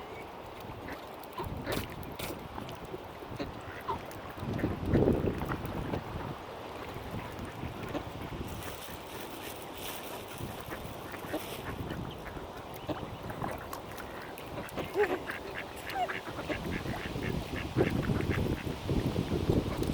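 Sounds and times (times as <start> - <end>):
ducks quacking: 10.5 - 18.7
low wind rumble: 16.3 - 19.9.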